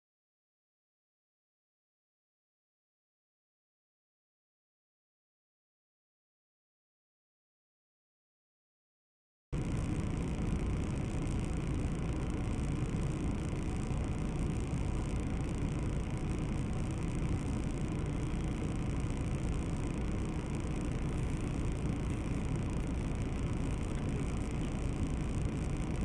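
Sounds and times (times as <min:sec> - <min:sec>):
car engine and road noise: 0:09.6 - 0:26.0.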